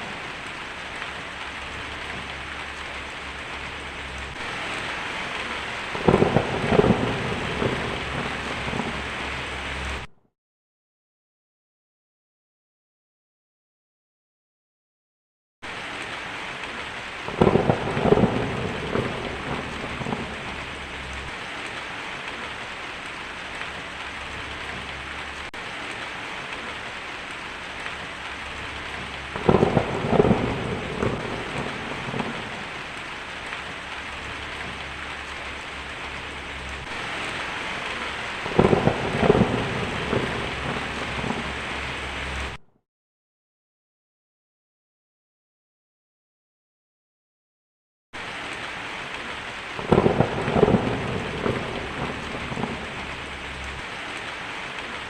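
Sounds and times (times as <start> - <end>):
steady rain falling: 0.0 - 10.1, 15.6 - 42.6, 48.2 - 55.0
thunder cracking and rumbling: 0.0 - 10.1, 16.7 - 42.6, 49.2 - 55.0.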